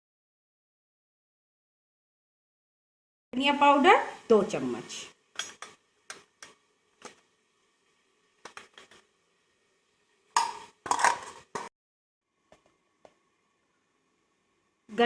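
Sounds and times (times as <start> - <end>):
spoon clinking against bowl: 10.4 - 11.7.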